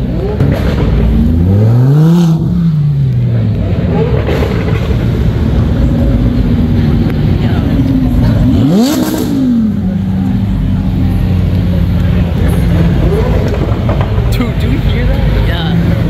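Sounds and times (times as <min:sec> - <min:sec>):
sports car rumbling by: 0:00.0 - 0:16.0
sports car revving past: 0:00.1 - 0:10.2.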